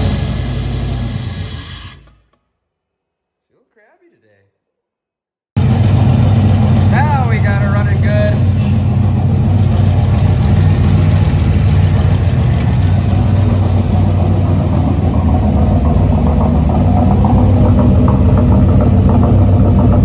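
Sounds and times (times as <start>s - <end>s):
turbocharged engine idling: 0.0s - 2.0s, 5.6s - 20.0s.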